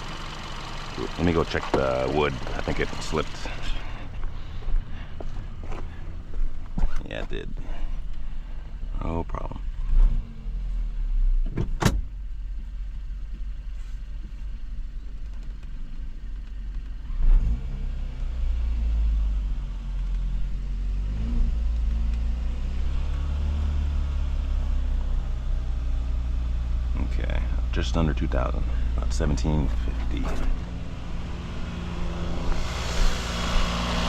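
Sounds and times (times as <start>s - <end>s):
car engine idling: 0.0s - 9.8s, 11.7s - 17.2s, 22.9s - 34.0s.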